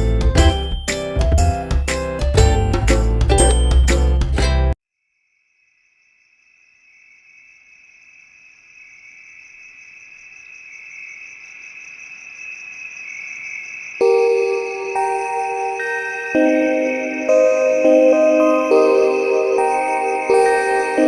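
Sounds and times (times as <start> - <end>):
high-pitched insect trill: 5.0 - 21.0.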